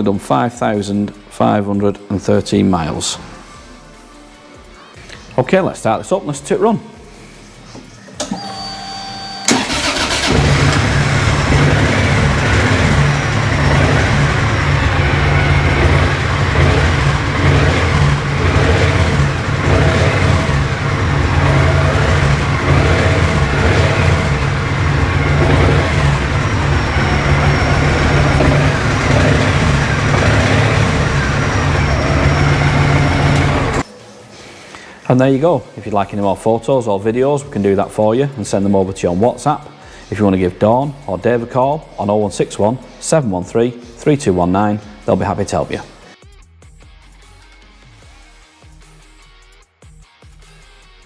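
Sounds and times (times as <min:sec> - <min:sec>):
starter motor whining: 0:08.1 - 0:33.8
motorcycle engine idling: 0:09.5 - 0:33.8.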